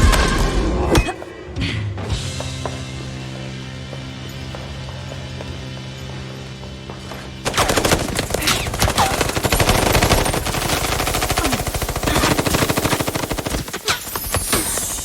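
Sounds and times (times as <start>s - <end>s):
rapid automatic gunfire: 7.4s - 15.0s.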